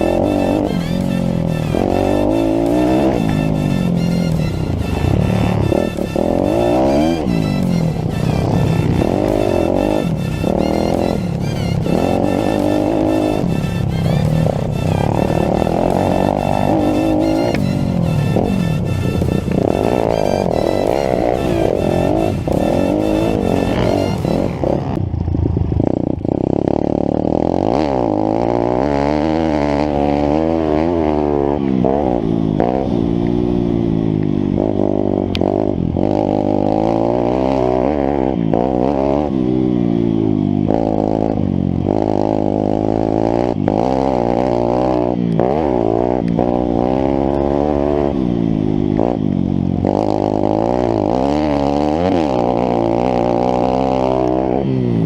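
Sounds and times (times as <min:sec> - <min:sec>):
music: 0:00.0 - 0:25.0
motorbike engine revving: 0:00.0 - 0:55.0.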